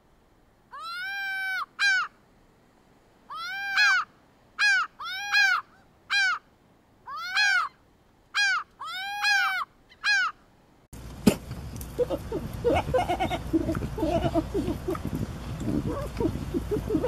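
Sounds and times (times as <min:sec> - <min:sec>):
gull calling: 0:00.7 - 0:02.2, 0:03.3 - 0:10.4, 0:12.0 - 0:17.0.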